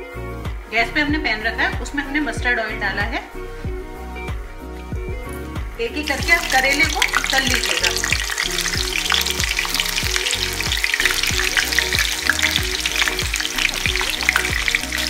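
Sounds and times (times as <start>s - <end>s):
background music with steady beat: 0.0s - 15.0s
vegetables sizzling in oil: 6.0s - 15.0s.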